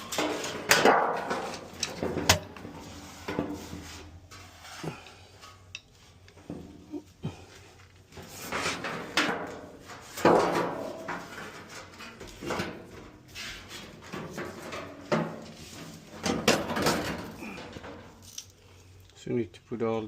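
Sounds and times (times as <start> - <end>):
knocks clunks and scrapes of panels: 0.0 - 5.6, 8.1 - 18.2.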